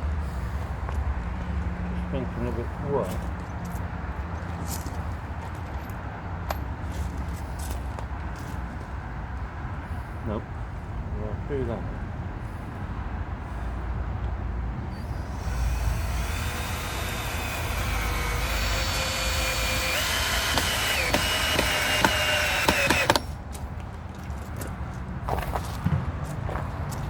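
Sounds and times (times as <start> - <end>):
power tool motor whining: 15.0 - 23.4
sharp clicks: 15.3 - 23.4.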